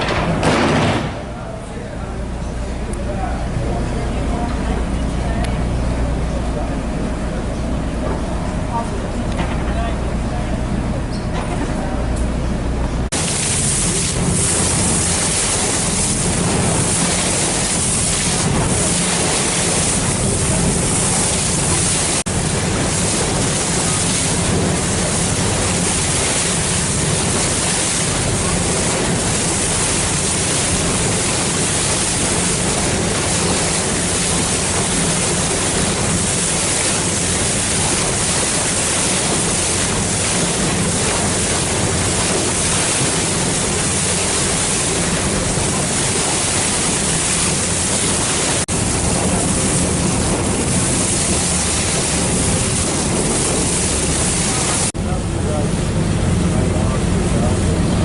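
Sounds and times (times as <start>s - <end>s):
water noise: 12.9s - 58.0s.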